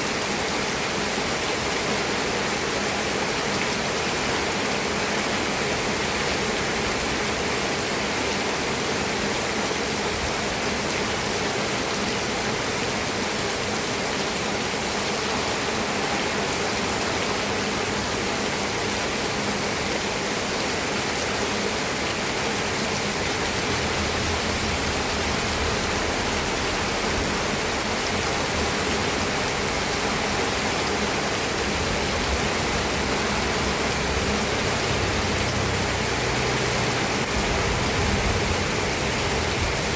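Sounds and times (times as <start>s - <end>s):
heavy rainfall: 0.0s - 39.9s.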